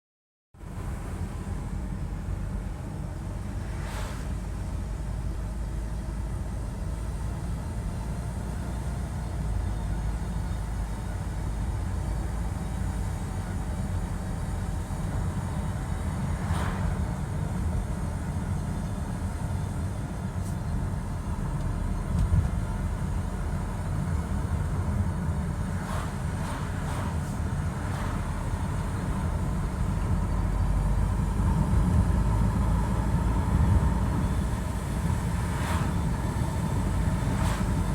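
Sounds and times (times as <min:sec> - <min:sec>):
road and engine rumble: 0:00.6 - 0:37.9.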